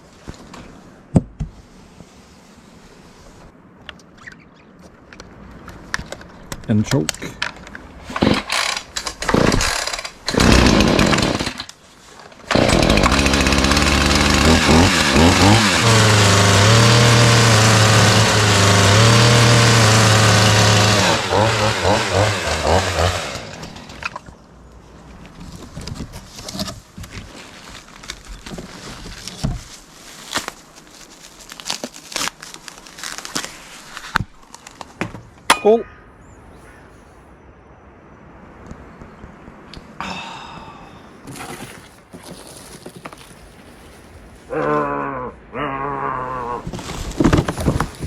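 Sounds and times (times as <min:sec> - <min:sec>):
chainsaw engine revving: 0:08.1 - 0:11.7, 0:12.5 - 0:24.2
starter cord pulls: 0:12.5 - 0:16.4.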